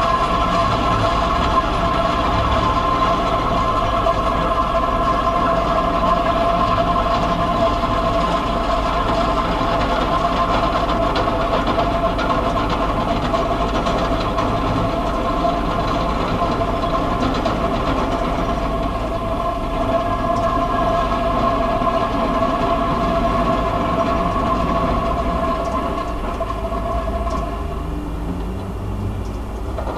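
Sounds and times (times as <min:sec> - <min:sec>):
low rumble and hiss: 0:11.2 - 0:29.9
held drone tones: 0:18.3 - 0:29.9.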